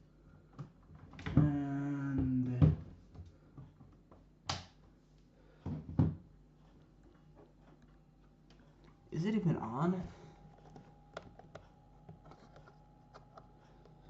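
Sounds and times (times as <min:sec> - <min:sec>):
person speaking: 0:09.0 - 0:10.4
handling noises: 0:10.0 - 0:14.0.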